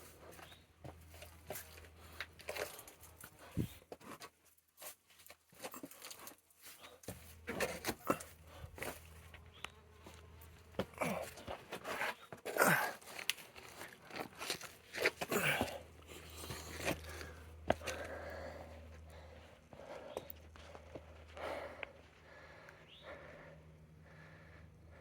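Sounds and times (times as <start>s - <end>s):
scuffs and clicks on rock: 0.1s - 18.4s
steady low hum: 7.0s - 25.0s.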